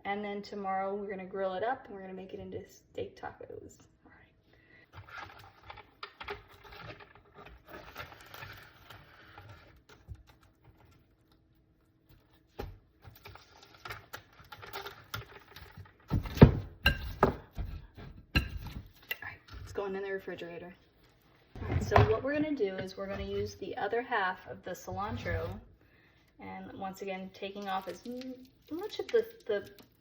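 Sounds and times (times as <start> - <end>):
kitchen knocks and clatters: 13.9 - 19.8, 21.6 - 23.6
cling wrap crinkling: 27.4 - 30.0.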